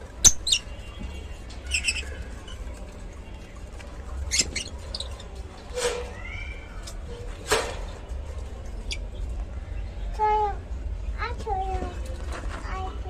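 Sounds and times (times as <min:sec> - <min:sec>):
lovebirds chirping: 0:00.2 - 0:05.4, 0:08.6 - 0:10.4.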